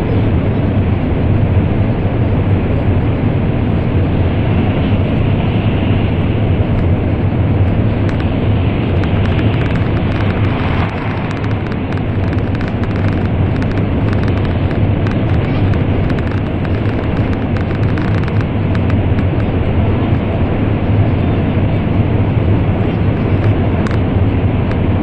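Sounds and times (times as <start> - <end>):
train interior roar in tunnel: 0.0 - 25.0
faint ticks: 9.0 - 19.5.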